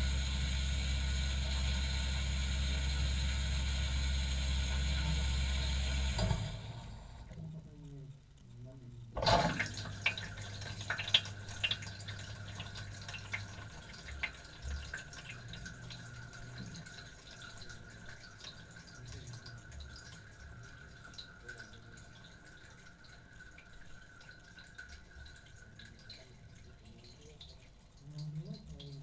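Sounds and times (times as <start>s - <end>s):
drips and knocks: 9.2s - 29.0s.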